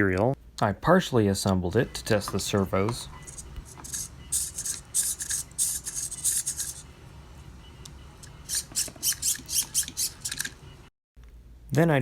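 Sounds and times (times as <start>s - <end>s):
servos whirring: 2.0s - 10.9s.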